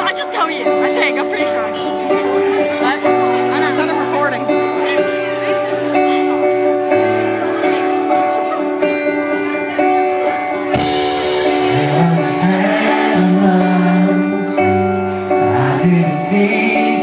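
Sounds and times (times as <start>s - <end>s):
live pop-rock band playing: 0.0s - 17.0s
person singing: 11.2s - 17.0s.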